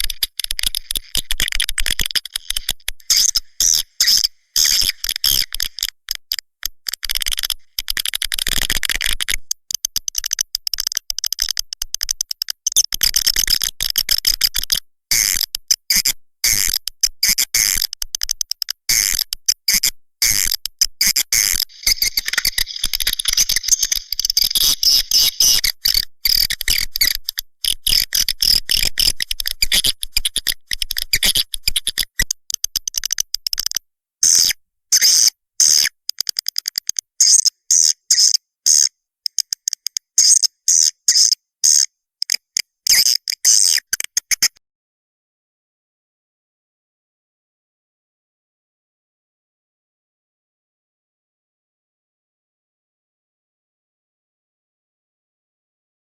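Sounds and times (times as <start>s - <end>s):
rapid high bird chirping: 3.1s - 5.5s, 19.7s - 27.3s, 34.2s - 35.9s, 37.2s - 44.5s.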